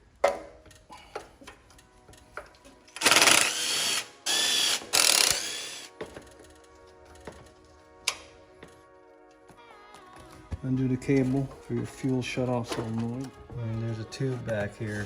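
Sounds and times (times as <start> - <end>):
ratchet wrench clicking: 0.7 - 5.9.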